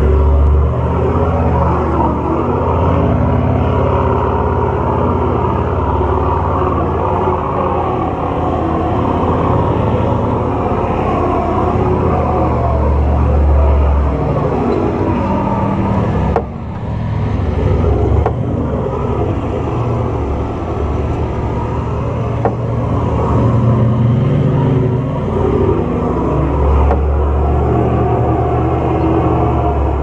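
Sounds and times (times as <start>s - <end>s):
off-road vehicle engines running: 0.0s - 30.0s.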